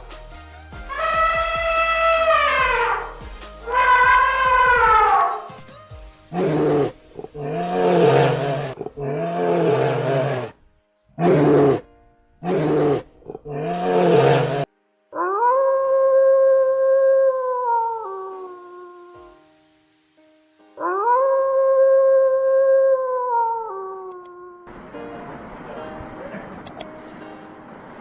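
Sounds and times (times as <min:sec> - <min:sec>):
higher gliding call: 0:00.9 - 0:05.6
big cat roaring: 0:06.3 - 0:10.6, 0:11.2 - 0:15.7.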